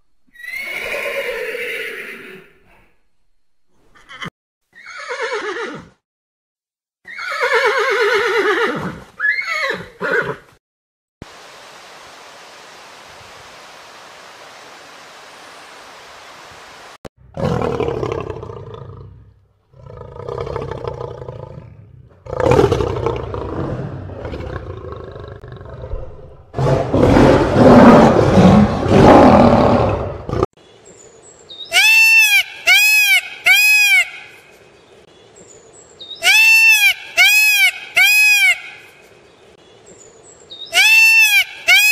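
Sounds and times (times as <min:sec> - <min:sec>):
horse whinnying: 0:00.3 - 0:02.5, 0:04.0 - 0:06.0, 0:07.0 - 0:10.5
steady hiss: 0:11.2 - 0:17.0
lion roaring and grunting: 0:17.3 - 0:30.5
peacock calling: 0:31.6 - 0:34.5, 0:36.1 - 0:39.1, 0:40.6 - 0:41.9.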